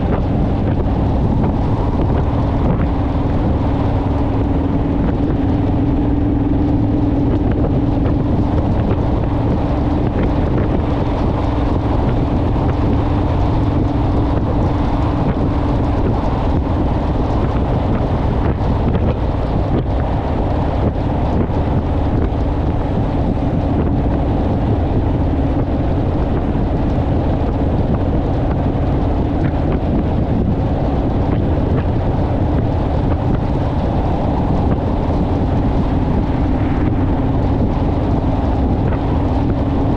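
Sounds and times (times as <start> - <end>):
motorcycle engine cruising: 0.0 - 39.9
wind on microphone: 0.0 - 39.9.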